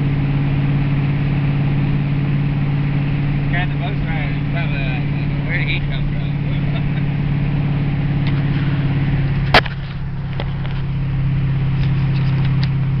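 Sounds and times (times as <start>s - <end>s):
car engine drone from cabin: 0.0s - 13.0s.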